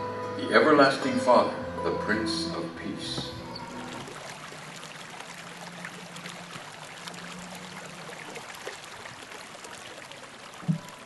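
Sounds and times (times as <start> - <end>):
water trickling and splashing: 2.6 - 11.0.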